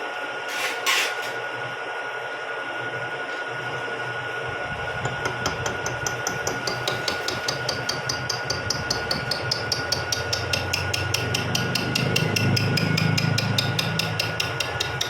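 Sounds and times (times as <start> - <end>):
milling machine humming: 1.7 - 15.0
cutter tapping metal: 5.0 - 15.0.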